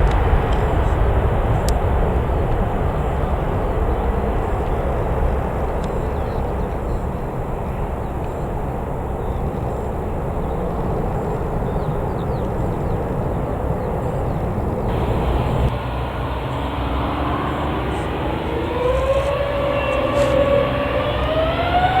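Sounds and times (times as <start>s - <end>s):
jet engine rumble: 0.0s - 22.0s
rising engine whine: 14.1s - 22.0s.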